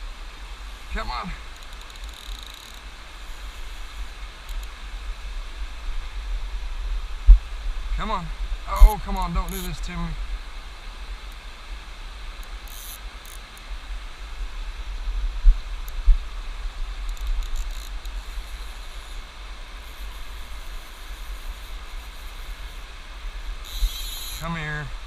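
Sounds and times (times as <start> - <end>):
river water rushing: 0.0 - 25.0
low rumble on microphone: 2.9 - 12.4, 13.7 - 24.0.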